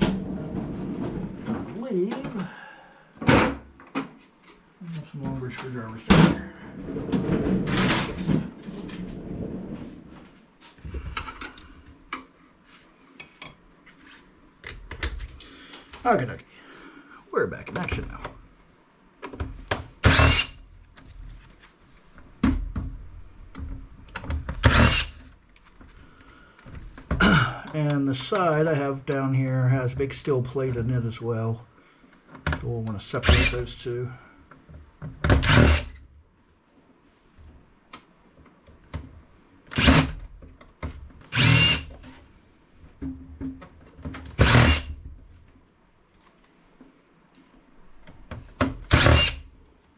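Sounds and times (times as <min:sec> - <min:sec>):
power drill whining: 0:20.1 - 0:20.6, 0:24.6 - 0:25.2, 0:33.3 - 0:33.6, 0:35.4 - 0:35.9, 0:39.7 - 0:40.2, 0:41.3 - 0:41.9, 0:44.4 - 0:44.9, 0:48.9 - 0:49.4.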